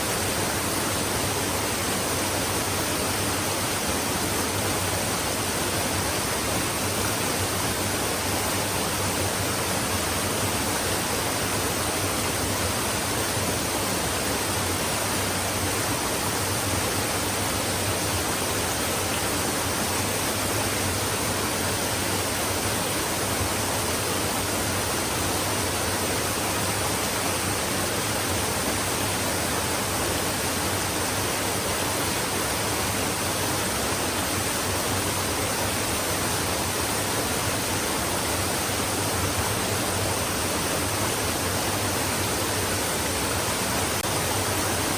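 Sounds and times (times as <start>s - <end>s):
stream water flowing: 0.0s - 44.9s.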